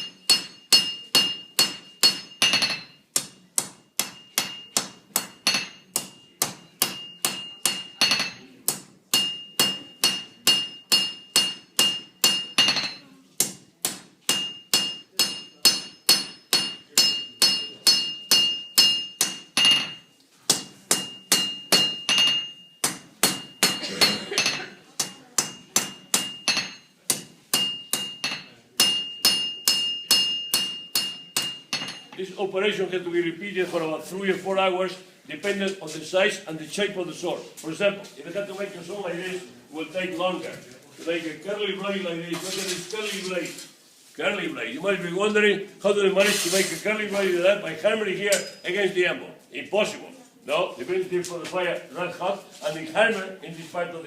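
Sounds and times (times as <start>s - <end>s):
forging hammer striking metal on anvil: 0.0s - 32.2s.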